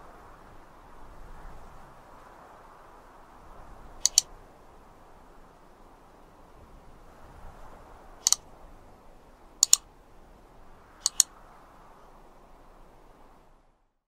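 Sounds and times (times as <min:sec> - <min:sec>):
faint steady hiss: 0:00.0 - 0:14.0
sharp double clicks: 0:04.0 - 0:04.3, 0:08.2 - 0:08.4, 0:09.6 - 0:09.9, 0:11.0 - 0:11.3.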